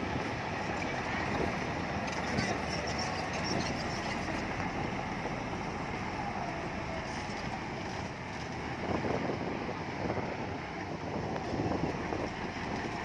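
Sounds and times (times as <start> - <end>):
bulldozer diesel engine running: 0.0 - 13.0.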